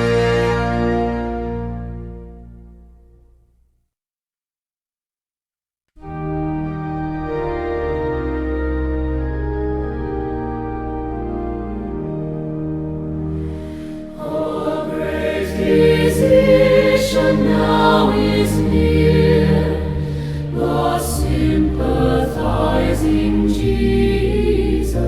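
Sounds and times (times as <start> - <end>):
keyboard chords: 0.0 - 3.0, 6.0 - 25.0
choir singing a hymn: 13.5 - 25.0.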